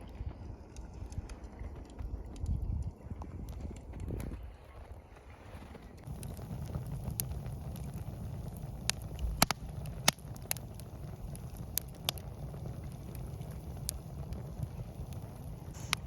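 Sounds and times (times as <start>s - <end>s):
campfire crackling and popping: 0.0s - 16.0s
steady low rumble: 6.0s - 16.0s.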